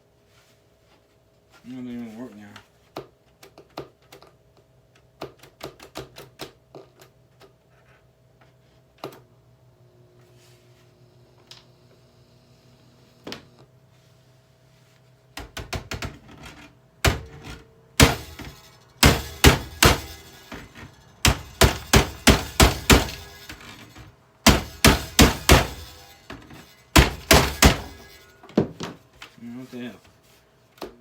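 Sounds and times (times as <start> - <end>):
plastic casing being struck: 17.1 - 28.8.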